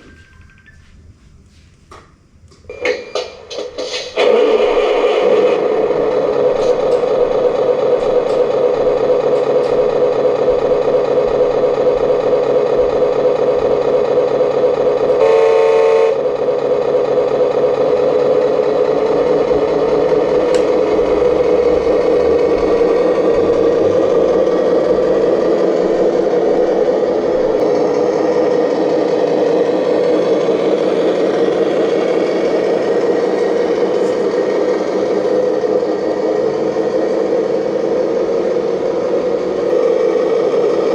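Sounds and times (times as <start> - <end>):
model excavator motors whining: 0.0 - 0.9, 2.6 - 40.9
horn-like tone: 15.1 - 16.3.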